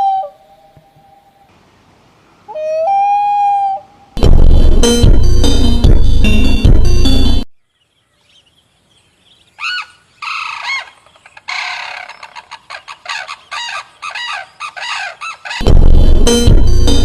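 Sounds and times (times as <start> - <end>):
loud music: 4.2 - 7.4, 15.6 - 17.0
bird calling repeated notes: 9.6 - 15.7.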